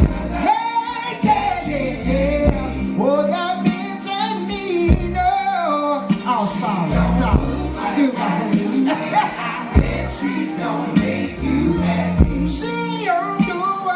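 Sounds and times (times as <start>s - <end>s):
bass line: 0.0s - 0.5s, 1.2s - 3.0s, 4.9s - 5.3s, 6.8s - 8.1s, 9.2s - 12.8s
person singing long notes: 6.6s - 13.9s
drum hits: 7.4s - 7.6s, 9.8s - 10.2s.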